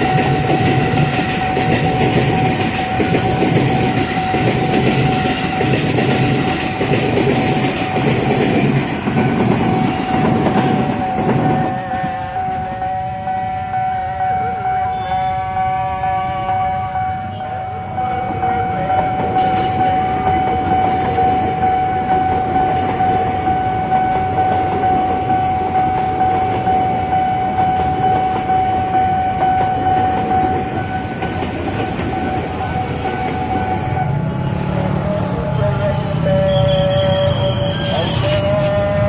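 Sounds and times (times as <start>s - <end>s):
train wheels clattering on rails: 0.0s - 12.5s, 18.4s - 39.0s
steady high tone: 0.0s - 39.0s.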